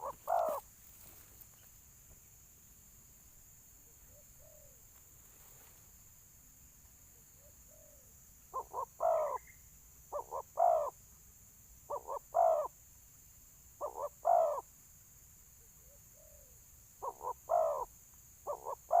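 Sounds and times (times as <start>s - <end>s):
faint soft coo: 0.0s - 0.6s, 3.8s - 4.8s, 7.2s - 9.4s, 15.6s - 17.9s
dove cooing: 0.0s - 0.7s, 4.1s - 4.8s, 7.4s - 9.5s, 10.1s - 11.0s, 11.9s - 12.7s, 13.8s - 14.6s, 15.8s - 19.0s.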